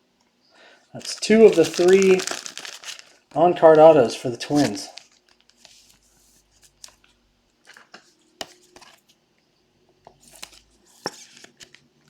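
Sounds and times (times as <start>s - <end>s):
packaging crinkling and rustling: 1.0s - 6.0s.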